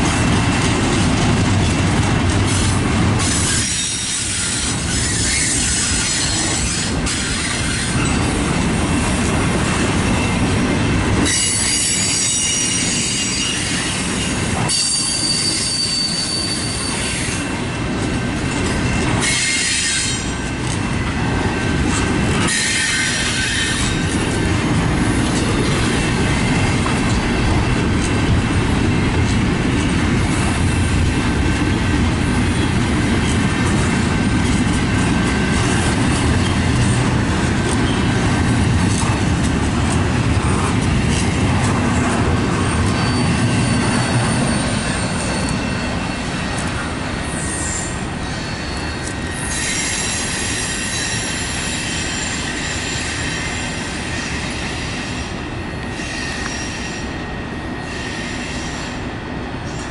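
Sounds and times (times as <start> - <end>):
train cars rumbling past: 0.0 - 59.9
wheel flanges squealing: 11.2 - 17.4, 42.5 - 55.2.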